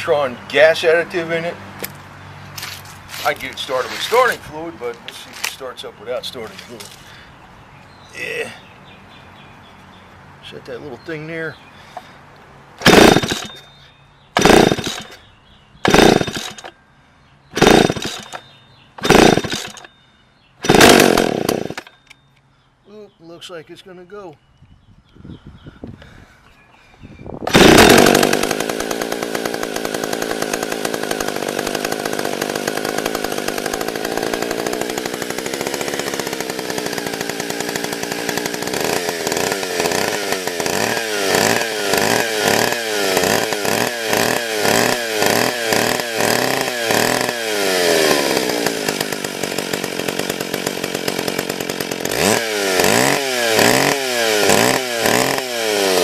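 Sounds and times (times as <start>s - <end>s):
chainsaw revving: 2.6s - 4.4s, 12.8s - 13.6s, 14.4s - 15.2s, 15.8s - 16.8s, 17.5s - 19.9s, 20.6s - 22.0s, 27.5s - 56.0s.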